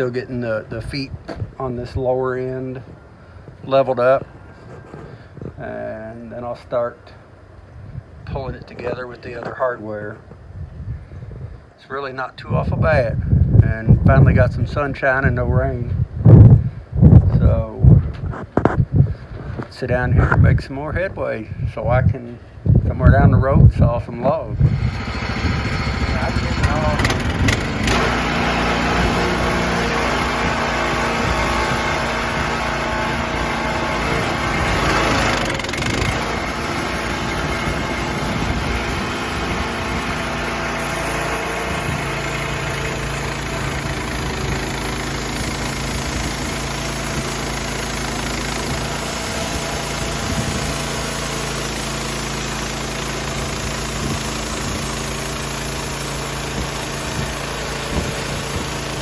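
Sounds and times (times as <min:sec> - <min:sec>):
engine idling: 0:24.7 - 0:32.7, 0:33.5 - 0:59.0.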